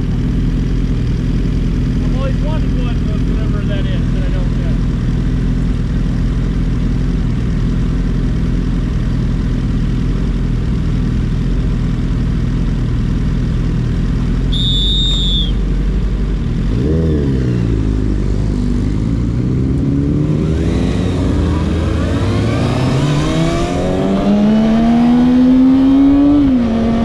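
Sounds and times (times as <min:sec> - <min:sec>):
motorcycle engine idling and revving: 0:00.0 - 0:27.0
short high beep: 0:14.5 - 0:15.6.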